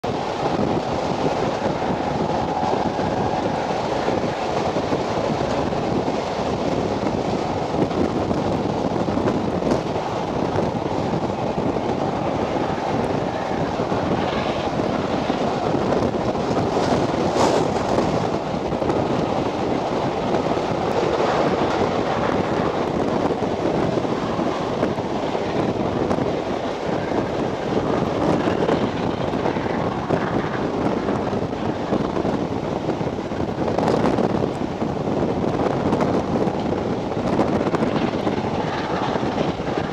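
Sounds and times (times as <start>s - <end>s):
steam train running on rails: 0.0s - 39.9s
wind buffeting microphone: 0.0s - 39.9s.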